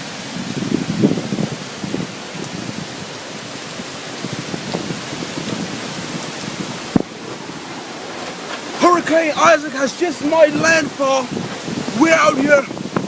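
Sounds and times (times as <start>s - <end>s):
rain hissing: 0.0s - 13.0s
wind gusts: 0.0s - 13.0s.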